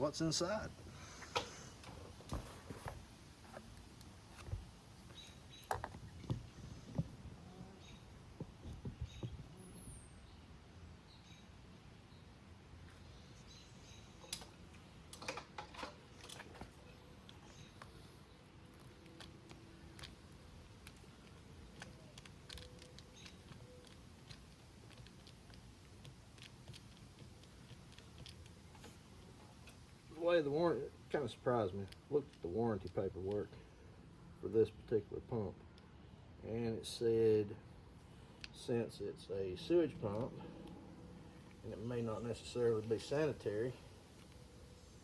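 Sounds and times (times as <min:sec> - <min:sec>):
faint small clicks and scrapes: 0:14.2 - 0:30.0, 0:31.1 - 0:33.7.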